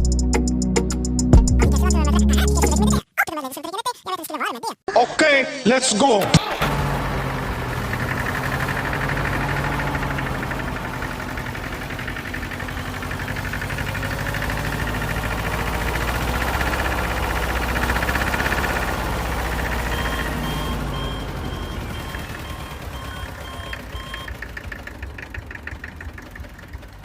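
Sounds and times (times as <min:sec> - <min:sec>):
small motor rattling whir: 0:06.6 - 0:22.8
short beeps: 0:19.8 - 0:24.3.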